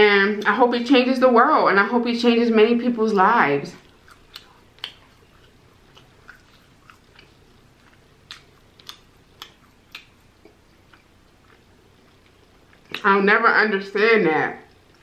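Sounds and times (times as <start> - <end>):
wet chewing smacks: 3.8 - 13.1, 14.7 - 15.0.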